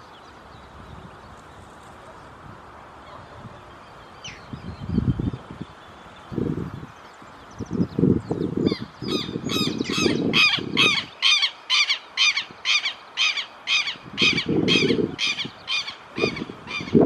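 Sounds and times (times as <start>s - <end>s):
birds giving harsh scolding calls: 8.6s - 17.0s.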